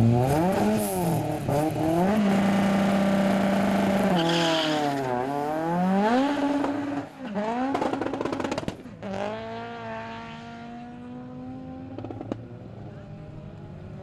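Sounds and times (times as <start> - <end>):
car engine revving: 0.0 - 13.7
tyre squeal: 4.1 - 5.1.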